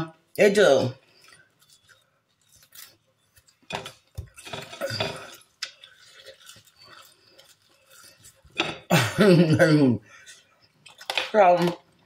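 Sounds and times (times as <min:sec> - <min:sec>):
person chewing food: 0:01.0 - 0:09.0, 0:10.0 - 0:11.2.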